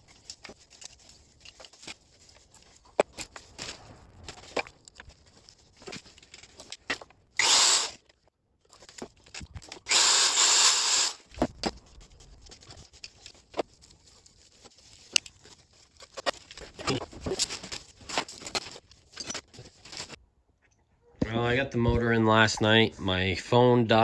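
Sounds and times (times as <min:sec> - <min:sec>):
power tool working metal: 0:07.4 - 0:08.0, 0:09.9 - 0:11.3.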